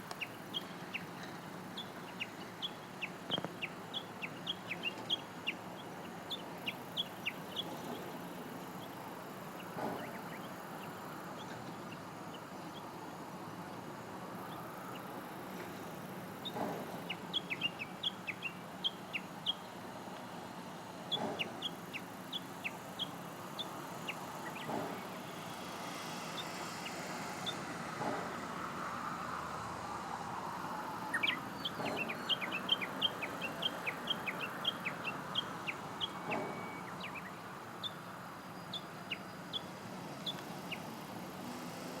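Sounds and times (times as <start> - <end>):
bird chirping: 0.1 - 8.2, 16.4 - 19.7, 31.0 - 40.9.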